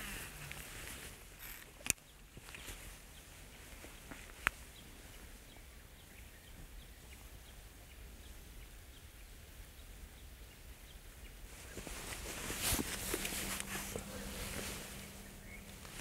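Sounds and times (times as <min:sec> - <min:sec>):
outdoor background noise: 0:00.0 - 0:16.0
faint bird chirps: 0:13.2 - 0:16.0.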